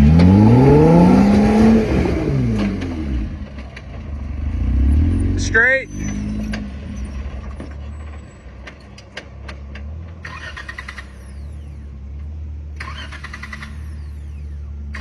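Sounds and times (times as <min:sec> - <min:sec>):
off-road vehicle engine running low: 0:00.0 - 0:15.0
sharp clicks and knocks: 0:07.4 - 0:11.3.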